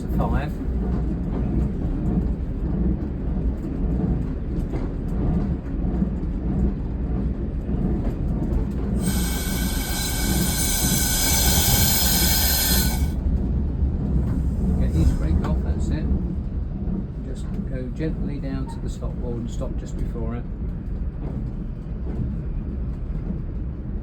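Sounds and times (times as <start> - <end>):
diesel railcar rumbling: 0.0 - 24.0
high metallic wheel squeal: 9.0 - 13.2.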